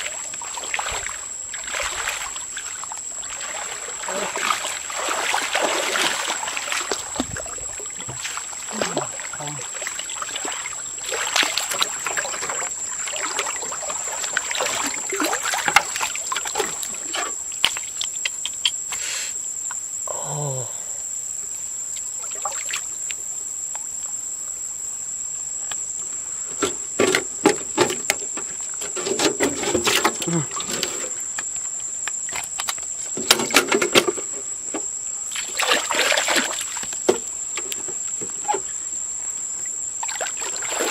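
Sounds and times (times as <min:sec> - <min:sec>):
water splashing and sloshing: 0:00.0 - 0:18.9, 0:21.9 - 0:24.1, 0:25.6 - 0:40.9.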